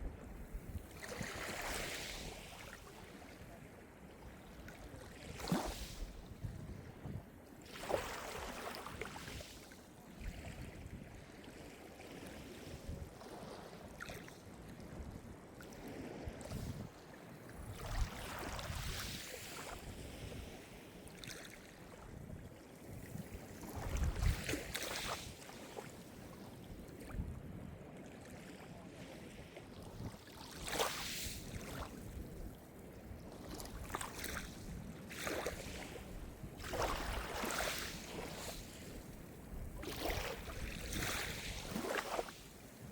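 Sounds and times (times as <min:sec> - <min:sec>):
small waves breaking on shore: 0:00.0 - 0:27.2, 0:27.9 - 0:42.9.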